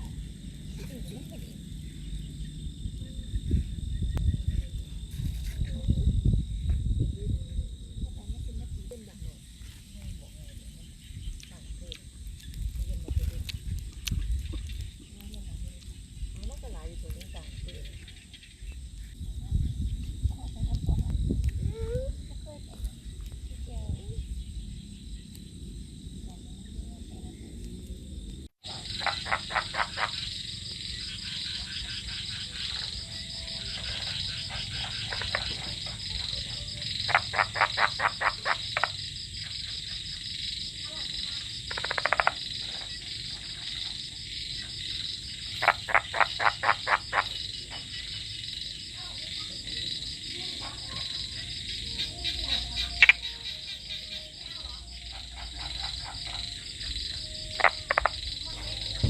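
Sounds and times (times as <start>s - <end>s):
frogs croaking in pulsed calls: 0.0s - 4.9s, 9.5s - 20.9s, 28.6s - 59.0s
high-pitched chorus of frogs or insects: 0.0s - 59.0s.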